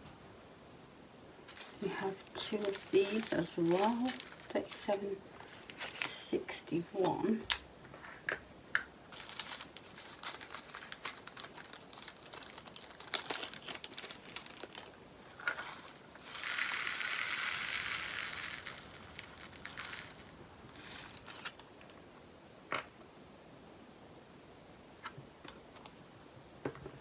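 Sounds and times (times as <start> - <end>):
plastic bag crinkling: 1.5 - 6.2, 9.1 - 21.6
tiny beads rattling into plastic pot: 1.5 - 6.3, 9.1 - 21.5.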